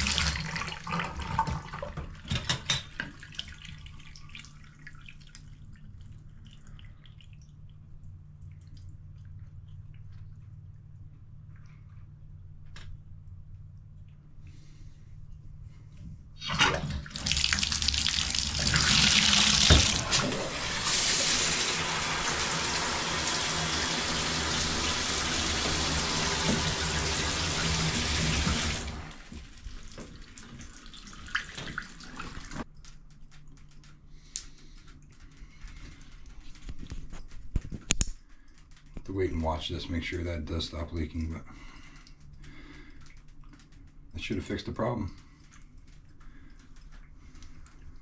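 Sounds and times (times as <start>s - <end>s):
water running from tap: 0.0s - 5.8s, 16.4s - 32.7s
small clicks: 32.6s - 39.1s, 41.2s - 44.2s.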